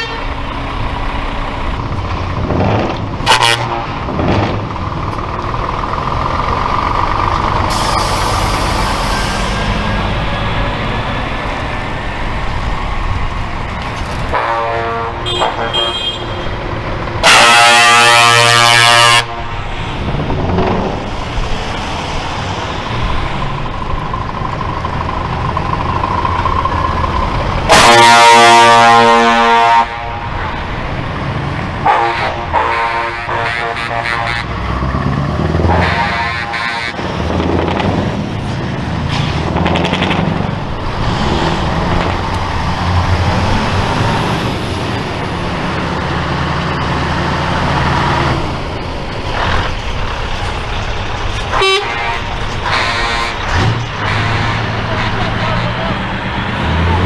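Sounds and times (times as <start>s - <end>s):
truck air horns blowing: 0.0s - 0.5s, 3.2s - 4.2s, 5.9s - 11.2s, 14.3s - 16.6s, 17.2s - 20.2s, 27.6s - 30.7s, 31.8s - 34.8s, 35.4s - 37.4s, 51.4s - 56.9s
truck engines and traffic: 0.0s - 57.0s.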